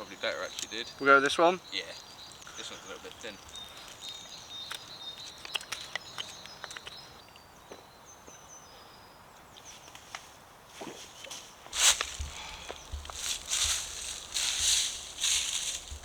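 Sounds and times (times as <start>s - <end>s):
twigs crackling underfoot: 0.0s - 7.4s, 9.8s - 16.0s
woodland birdsong: 0.0s - 16.0s
loud rustle: 10.9s - 16.0s.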